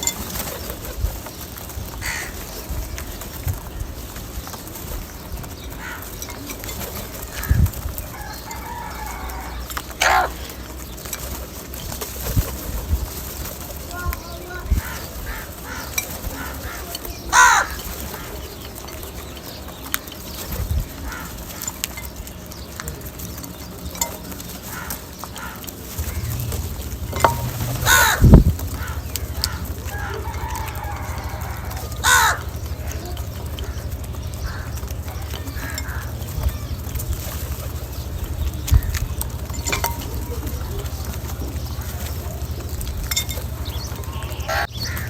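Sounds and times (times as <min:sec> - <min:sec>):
crows cawing: 0:02.0 - 0:02.6, 0:05.6 - 0:06.4, 0:07.2 - 0:10.8, 0:13.9 - 0:18.7, 0:20.9 - 0:21.8, 0:24.6 - 0:37.2, 0:43.6 - 0:45.0
steady low hum: 0:25.7 - 0:44.6.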